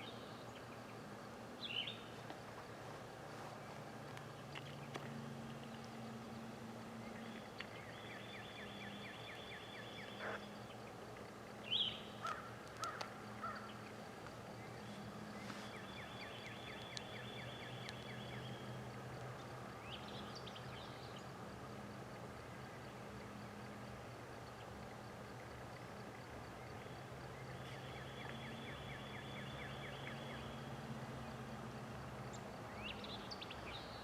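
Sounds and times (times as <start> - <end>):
songbird trills: 0.0 - 2.2, 4.4 - 21.4, 22.5 - 34.0
faint low steady hum: 0.0 - 34.0.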